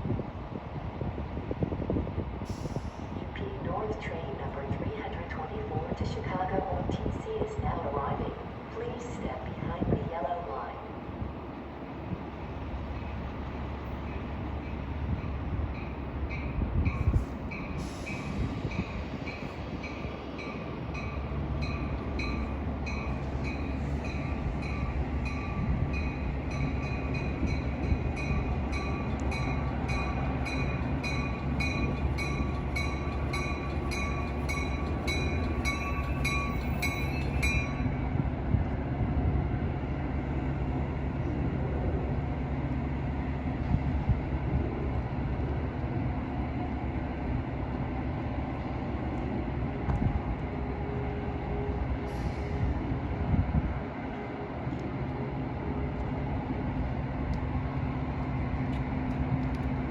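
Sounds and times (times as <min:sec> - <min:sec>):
train rumbling: 0:00.0 - 0:59.9
bell ringing: 0:30.0 - 0:37.9.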